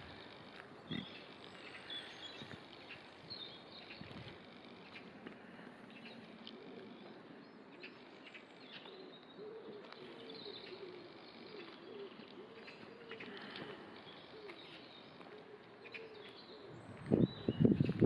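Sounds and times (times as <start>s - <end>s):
small birds chirping: 0.0s - 18.0s
low wavering cooing call: 6.5s - 7.9s, 8.8s - 17.6s.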